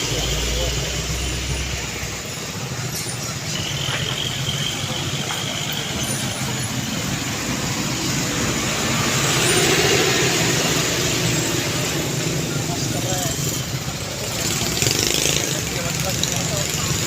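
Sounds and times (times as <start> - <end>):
heavy truck engine running: 0.0 - 17.0.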